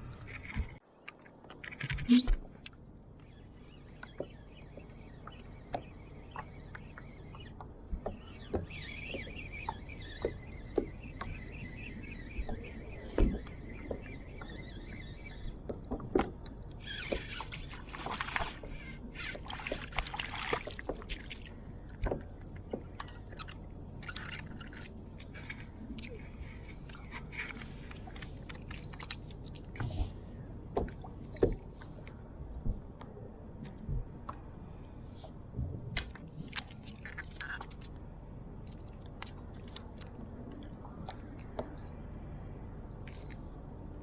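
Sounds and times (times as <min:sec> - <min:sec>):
steady low rumble: 0:00.0 - 0:00.8, 0:21.1 - 0:44.0
knocks and clicks in kayak: 0:04.0 - 0:21.3.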